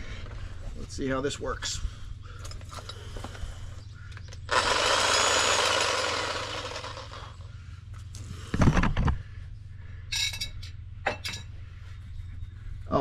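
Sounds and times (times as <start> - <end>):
reciprocating saw running: 4.5 - 7.5.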